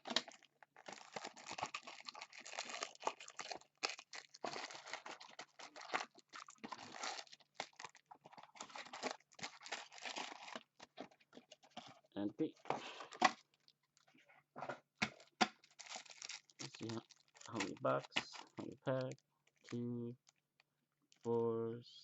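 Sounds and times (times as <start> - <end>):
foil and cardboard crinkling: 0.0 - 12.2, 15.1 - 20.4.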